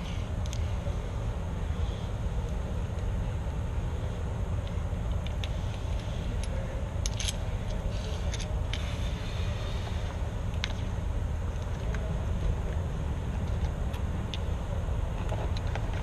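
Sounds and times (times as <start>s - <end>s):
steady low rumble: 0.0s - 16.0s
metal lock parts clicking: 5.1s - 8.8s.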